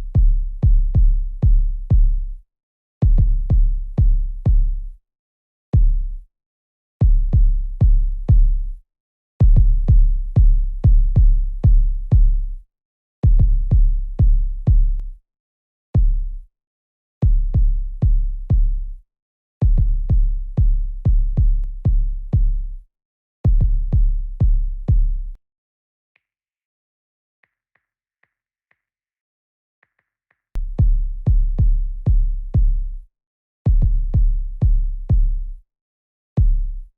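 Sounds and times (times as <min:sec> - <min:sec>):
drum machine kick drum: 0:00.0 - 0:02.3, 0:03.0 - 0:04.8, 0:05.8 - 0:06.2, 0:07.0 - 0:08.7, 0:09.4 - 0:12.5, 0:13.2 - 0:15.0, 0:16.0 - 0:16.4, 0:17.2 - 0:18.9, 0:19.6 - 0:22.7, 0:23.5 - 0:25.4, 0:30.6 - 0:33.0, 0:33.7 - 0:35.5, 0:36.4 - 0:36.9.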